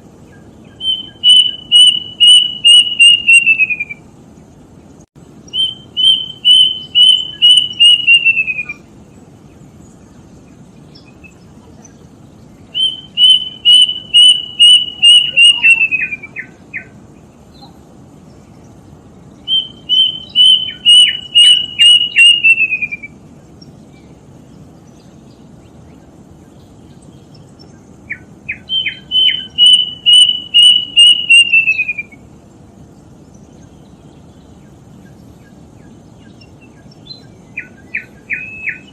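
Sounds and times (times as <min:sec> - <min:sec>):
cuckoo whistled song: 0:00.3 - 0:04.0, 0:05.5 - 0:08.9, 0:12.7 - 0:16.9, 0:19.4 - 0:23.2, 0:28.1 - 0:32.2, 0:36.2 - 0:38.9.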